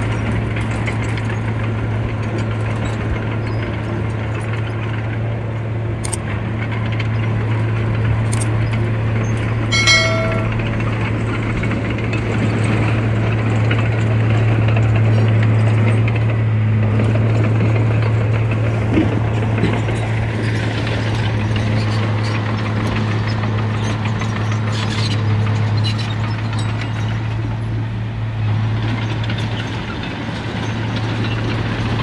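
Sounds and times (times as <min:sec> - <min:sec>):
short high beep: 0:09.7 - 0:10.7
diesel machinery engine running: 0:10.4 - 0:32.0.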